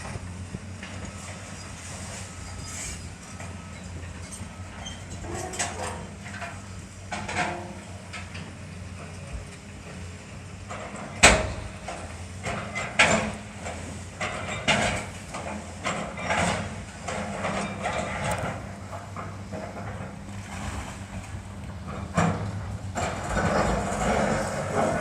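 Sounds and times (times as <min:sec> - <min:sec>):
heavy machinery running: 0:00.0 - 0:25.0
debris scraping and breaking: 0:22.9 - 0:25.0.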